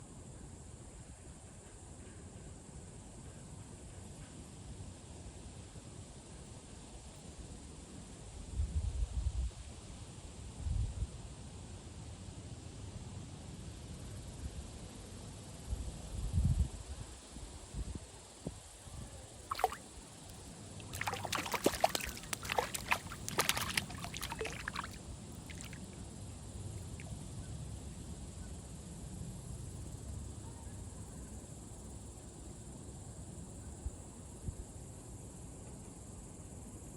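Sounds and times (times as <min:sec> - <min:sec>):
fish splashing at water surface: 0:19.5 - 0:19.9, 0:20.8 - 0:25.9.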